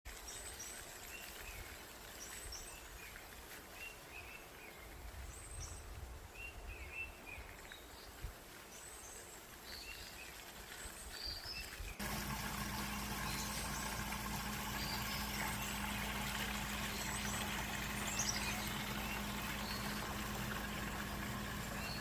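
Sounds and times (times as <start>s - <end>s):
birds chirping: 11.0s - 22.0s.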